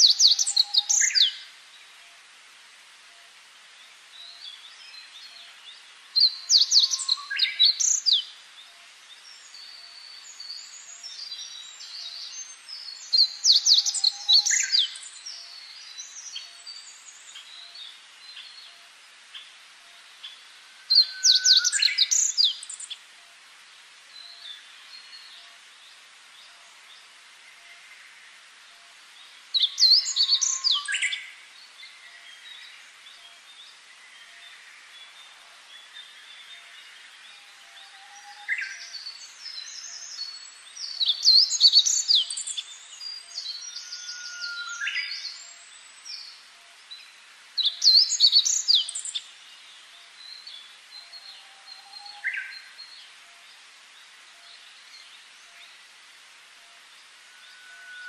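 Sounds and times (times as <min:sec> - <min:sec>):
songbird singing: 0:00.0 - 0:58.0
faint bird chirps: 0:04.2 - 0:23.1.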